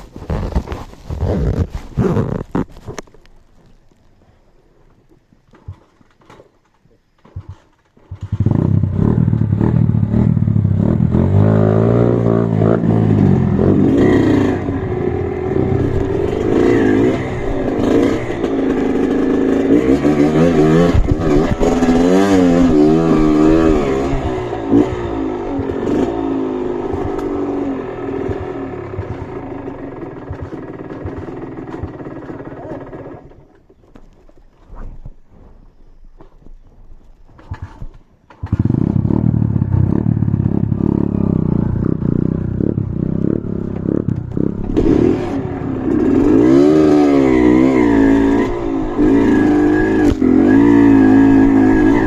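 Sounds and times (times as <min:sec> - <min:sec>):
motorcycle engine revving: 0:07.3 - 0:33.6, 0:37.4 - 0:52.0.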